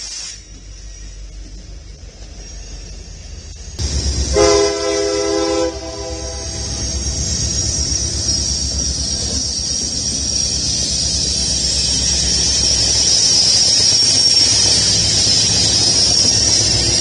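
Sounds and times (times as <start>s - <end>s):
locomotive engines rumbling: 0.0s - 17.0s
train air horn chord: 4.3s - 6.8s.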